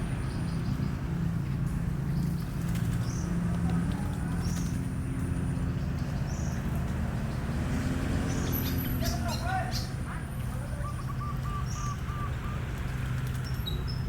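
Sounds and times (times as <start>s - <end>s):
high bird chirps: 10.6s - 12.7s.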